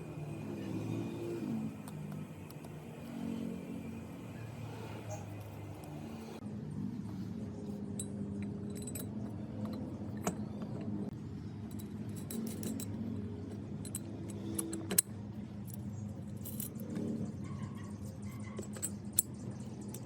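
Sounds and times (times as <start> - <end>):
small metal parts clinking: 7.9 - 10.8, 11.6 - 17.2, 18.0 - 20.0.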